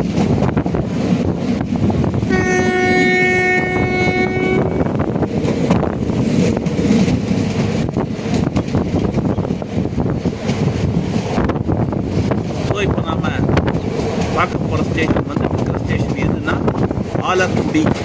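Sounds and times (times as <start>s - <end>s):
train wheels clattering on rails: 0.0s - 3.8s, 4.6s - 18.0s
train horn: 2.3s - 5.0s.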